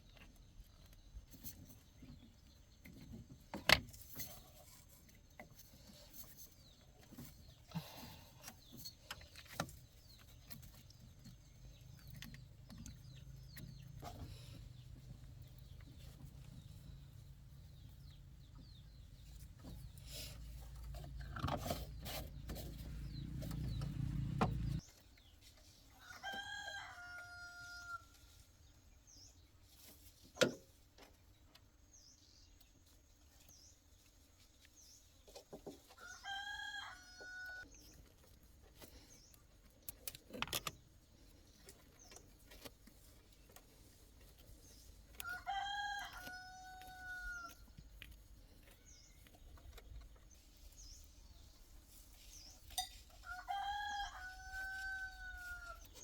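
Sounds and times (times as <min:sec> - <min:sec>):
rooster crowing: 0:26.0 - 0:28.1, 0:36.2 - 0:37.6, 0:45.2 - 0:47.6, 0:53.2 - 0:55.8.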